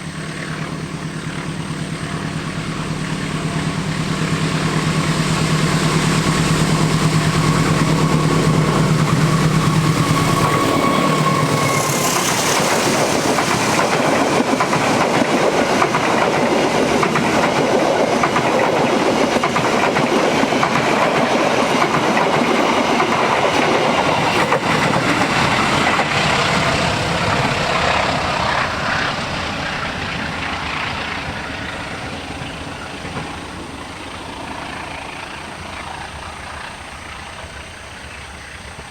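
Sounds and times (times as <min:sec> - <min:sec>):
locomotive engine hum: 0:00.0 - 0:38.9
train wheels clattering over rail joints: 0:05.7 - 0:36.7.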